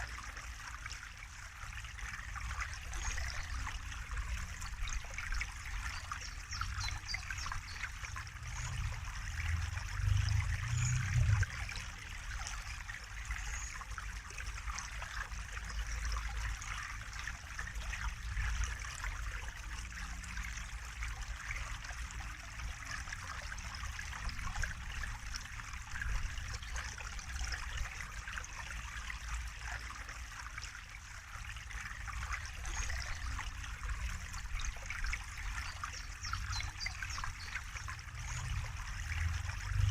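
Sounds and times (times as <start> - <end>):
water trickling and splashing: 0.0 - 39.9
low rumble: 8.4 - 11.7.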